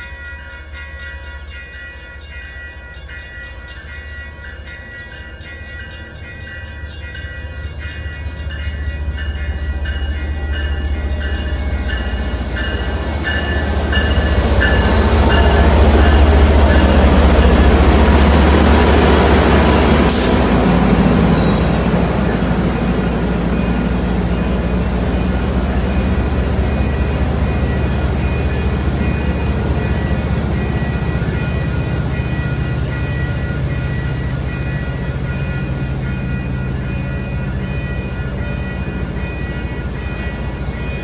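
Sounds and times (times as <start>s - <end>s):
train wheels squealing on rails: 0.0s - 22.7s
diesel locomotive engine drone: 0.0s - 41.0s.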